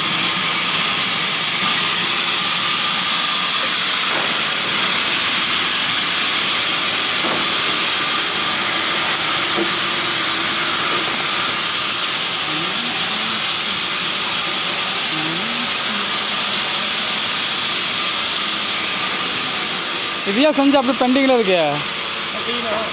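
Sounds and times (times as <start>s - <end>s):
loud steady hiss: 0.0s - 22.9s
faint voices: 12.4s - 13.9s.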